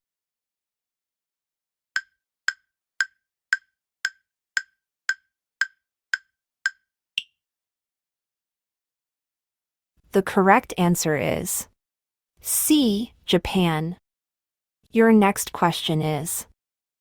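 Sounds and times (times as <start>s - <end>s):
countdown timer ticks: 2.0s - 7.3s.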